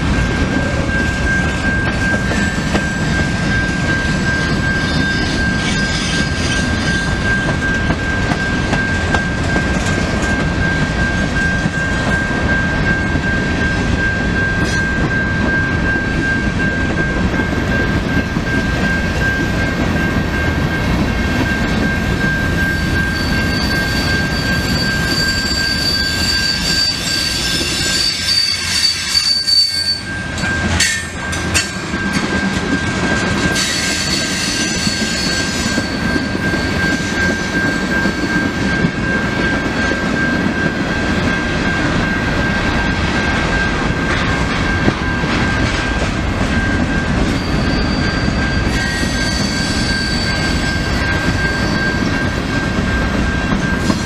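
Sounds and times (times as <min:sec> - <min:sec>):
train wheels rumbling on rail: 0:00.0 - 0:54.0
high-pitched wheel squeal: 0:04.4 - 0:07.4, 0:22.6 - 0:30.2, 0:33.5 - 0:38.4, 0:47.3 - 0:52.2.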